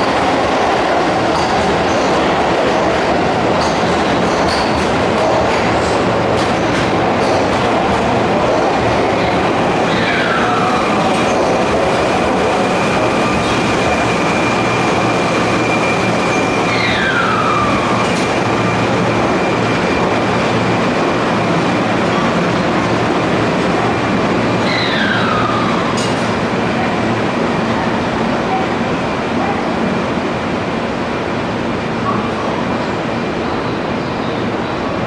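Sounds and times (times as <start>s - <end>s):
electric train running: 0.0s - 26.5s
high squeals sliding down: 12.7s - 20.7s, 24.6s - 26.2s.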